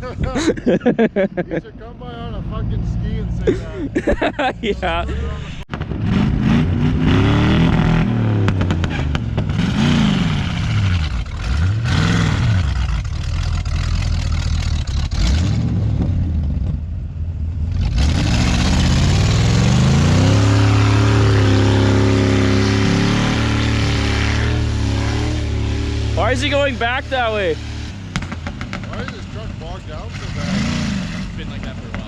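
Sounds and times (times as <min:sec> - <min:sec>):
truck engine revving: 0:00.0 - 0:32.0.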